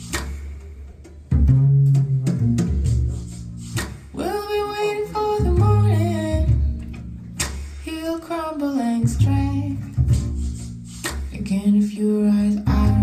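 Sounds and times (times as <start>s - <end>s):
deep bass line: 0.0s - 0.4s, 1.3s - 4.2s, 5.0s - 7.7s, 9.0s - 11.4s, 12.6s - 13.0s
plucked acoustic guitar: 3.8s - 11.5s
woman singing: 4.1s - 6.9s, 7.8s - 10.0s, 11.3s - 13.0s.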